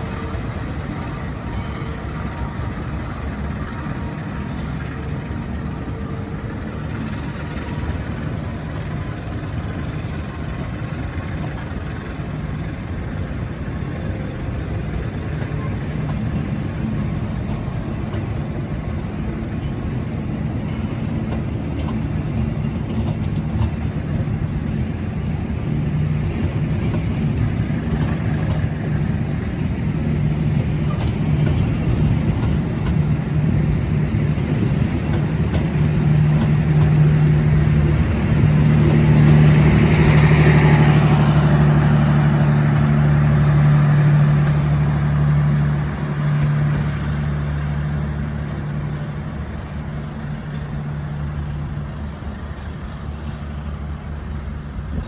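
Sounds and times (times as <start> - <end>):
locomotive engine drone: 0.0 - 55.0
train rolling noise: 0.0 - 55.0.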